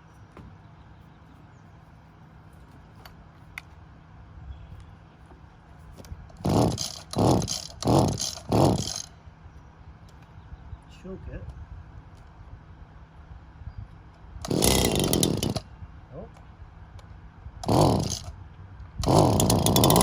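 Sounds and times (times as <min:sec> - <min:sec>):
recoil starter pulls: 0:06.3 - 0:09.1, 0:14.4 - 0:15.6, 0:17.6 - 0:18.3, 0:19.0 - 0:20.0.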